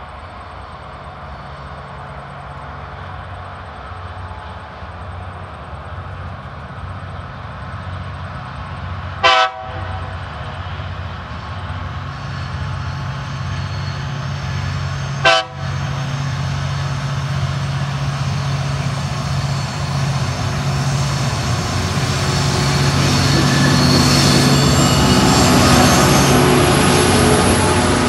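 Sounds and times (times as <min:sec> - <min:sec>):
locomotive engines droning: 0:00.0 - 0:28.0
train horn toot: 0:09.2 - 0:10.2, 0:15.2 - 0:15.9.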